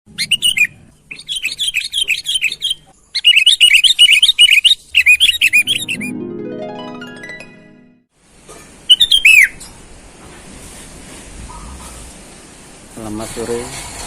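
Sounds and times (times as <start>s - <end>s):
bird chirping song: 0.1s - 6.1s, 8.9s - 9.7s
rising run of musical tones: 5.5s - 8.1s.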